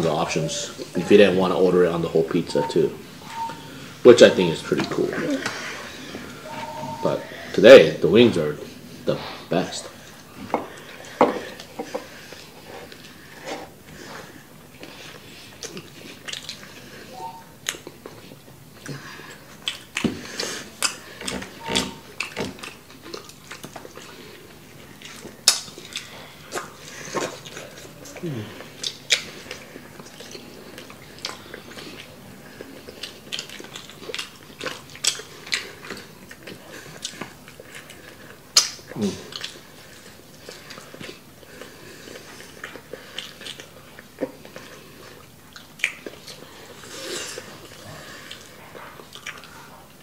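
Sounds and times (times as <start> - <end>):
wet chewing and lip-smacking: 14.8 - 49.8.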